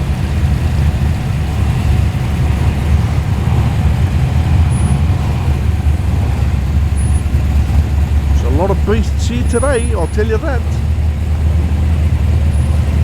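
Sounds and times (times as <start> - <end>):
car engine rumbling: 0.2 - 12.5.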